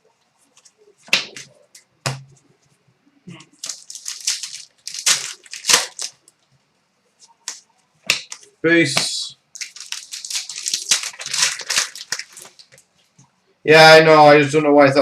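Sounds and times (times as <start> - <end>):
wrappers crinkling and tearing: 3.6 - 6.4, 9.5 - 12.9.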